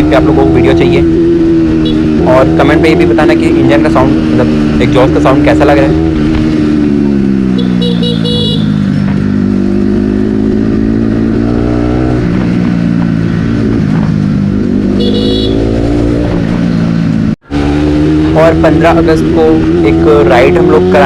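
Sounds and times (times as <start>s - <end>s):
motorcycle engine and exhaust: 0.0s - 21.0s
vehicle horn: 1.8s - 2.1s, 7.5s - 8.9s, 15.0s - 15.8s.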